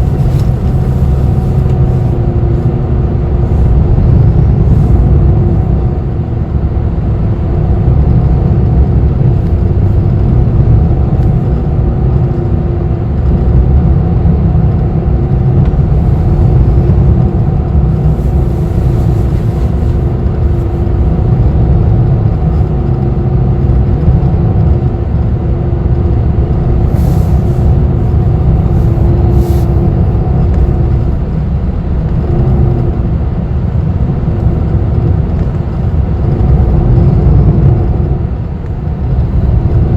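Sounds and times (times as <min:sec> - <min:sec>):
bus engine and road rumble: 0:00.0 - 0:39.9
bus hum: 0:00.0 - 0:39.9.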